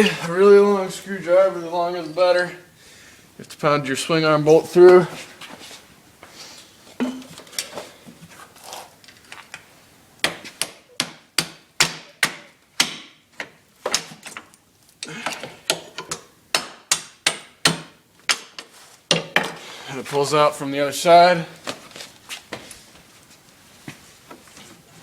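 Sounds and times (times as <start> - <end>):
quiet metal clanks: 7.0 - 7.7.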